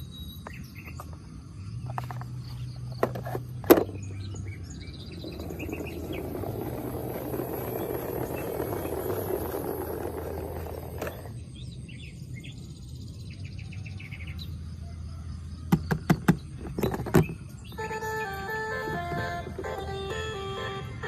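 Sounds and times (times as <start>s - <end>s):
simple electronic tune: 17.8s - 21.0s.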